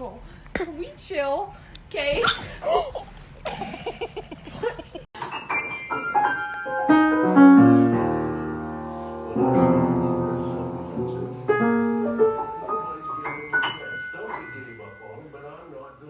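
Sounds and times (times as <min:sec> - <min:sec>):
piano music: 0:05.2 - 0:16.0.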